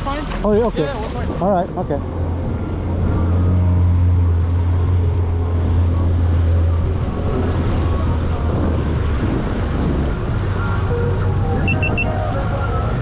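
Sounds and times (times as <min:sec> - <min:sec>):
water noise: 0:00.0 - 0:13.0
wind noise: 0:06.4 - 0:13.0.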